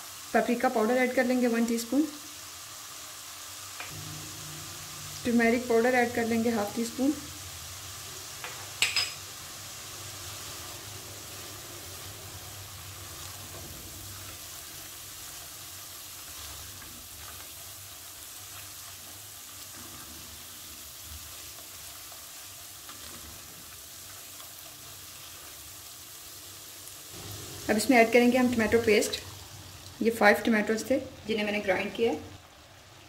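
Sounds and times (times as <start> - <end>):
paste sizzling in oil: 0.0 - 33.0.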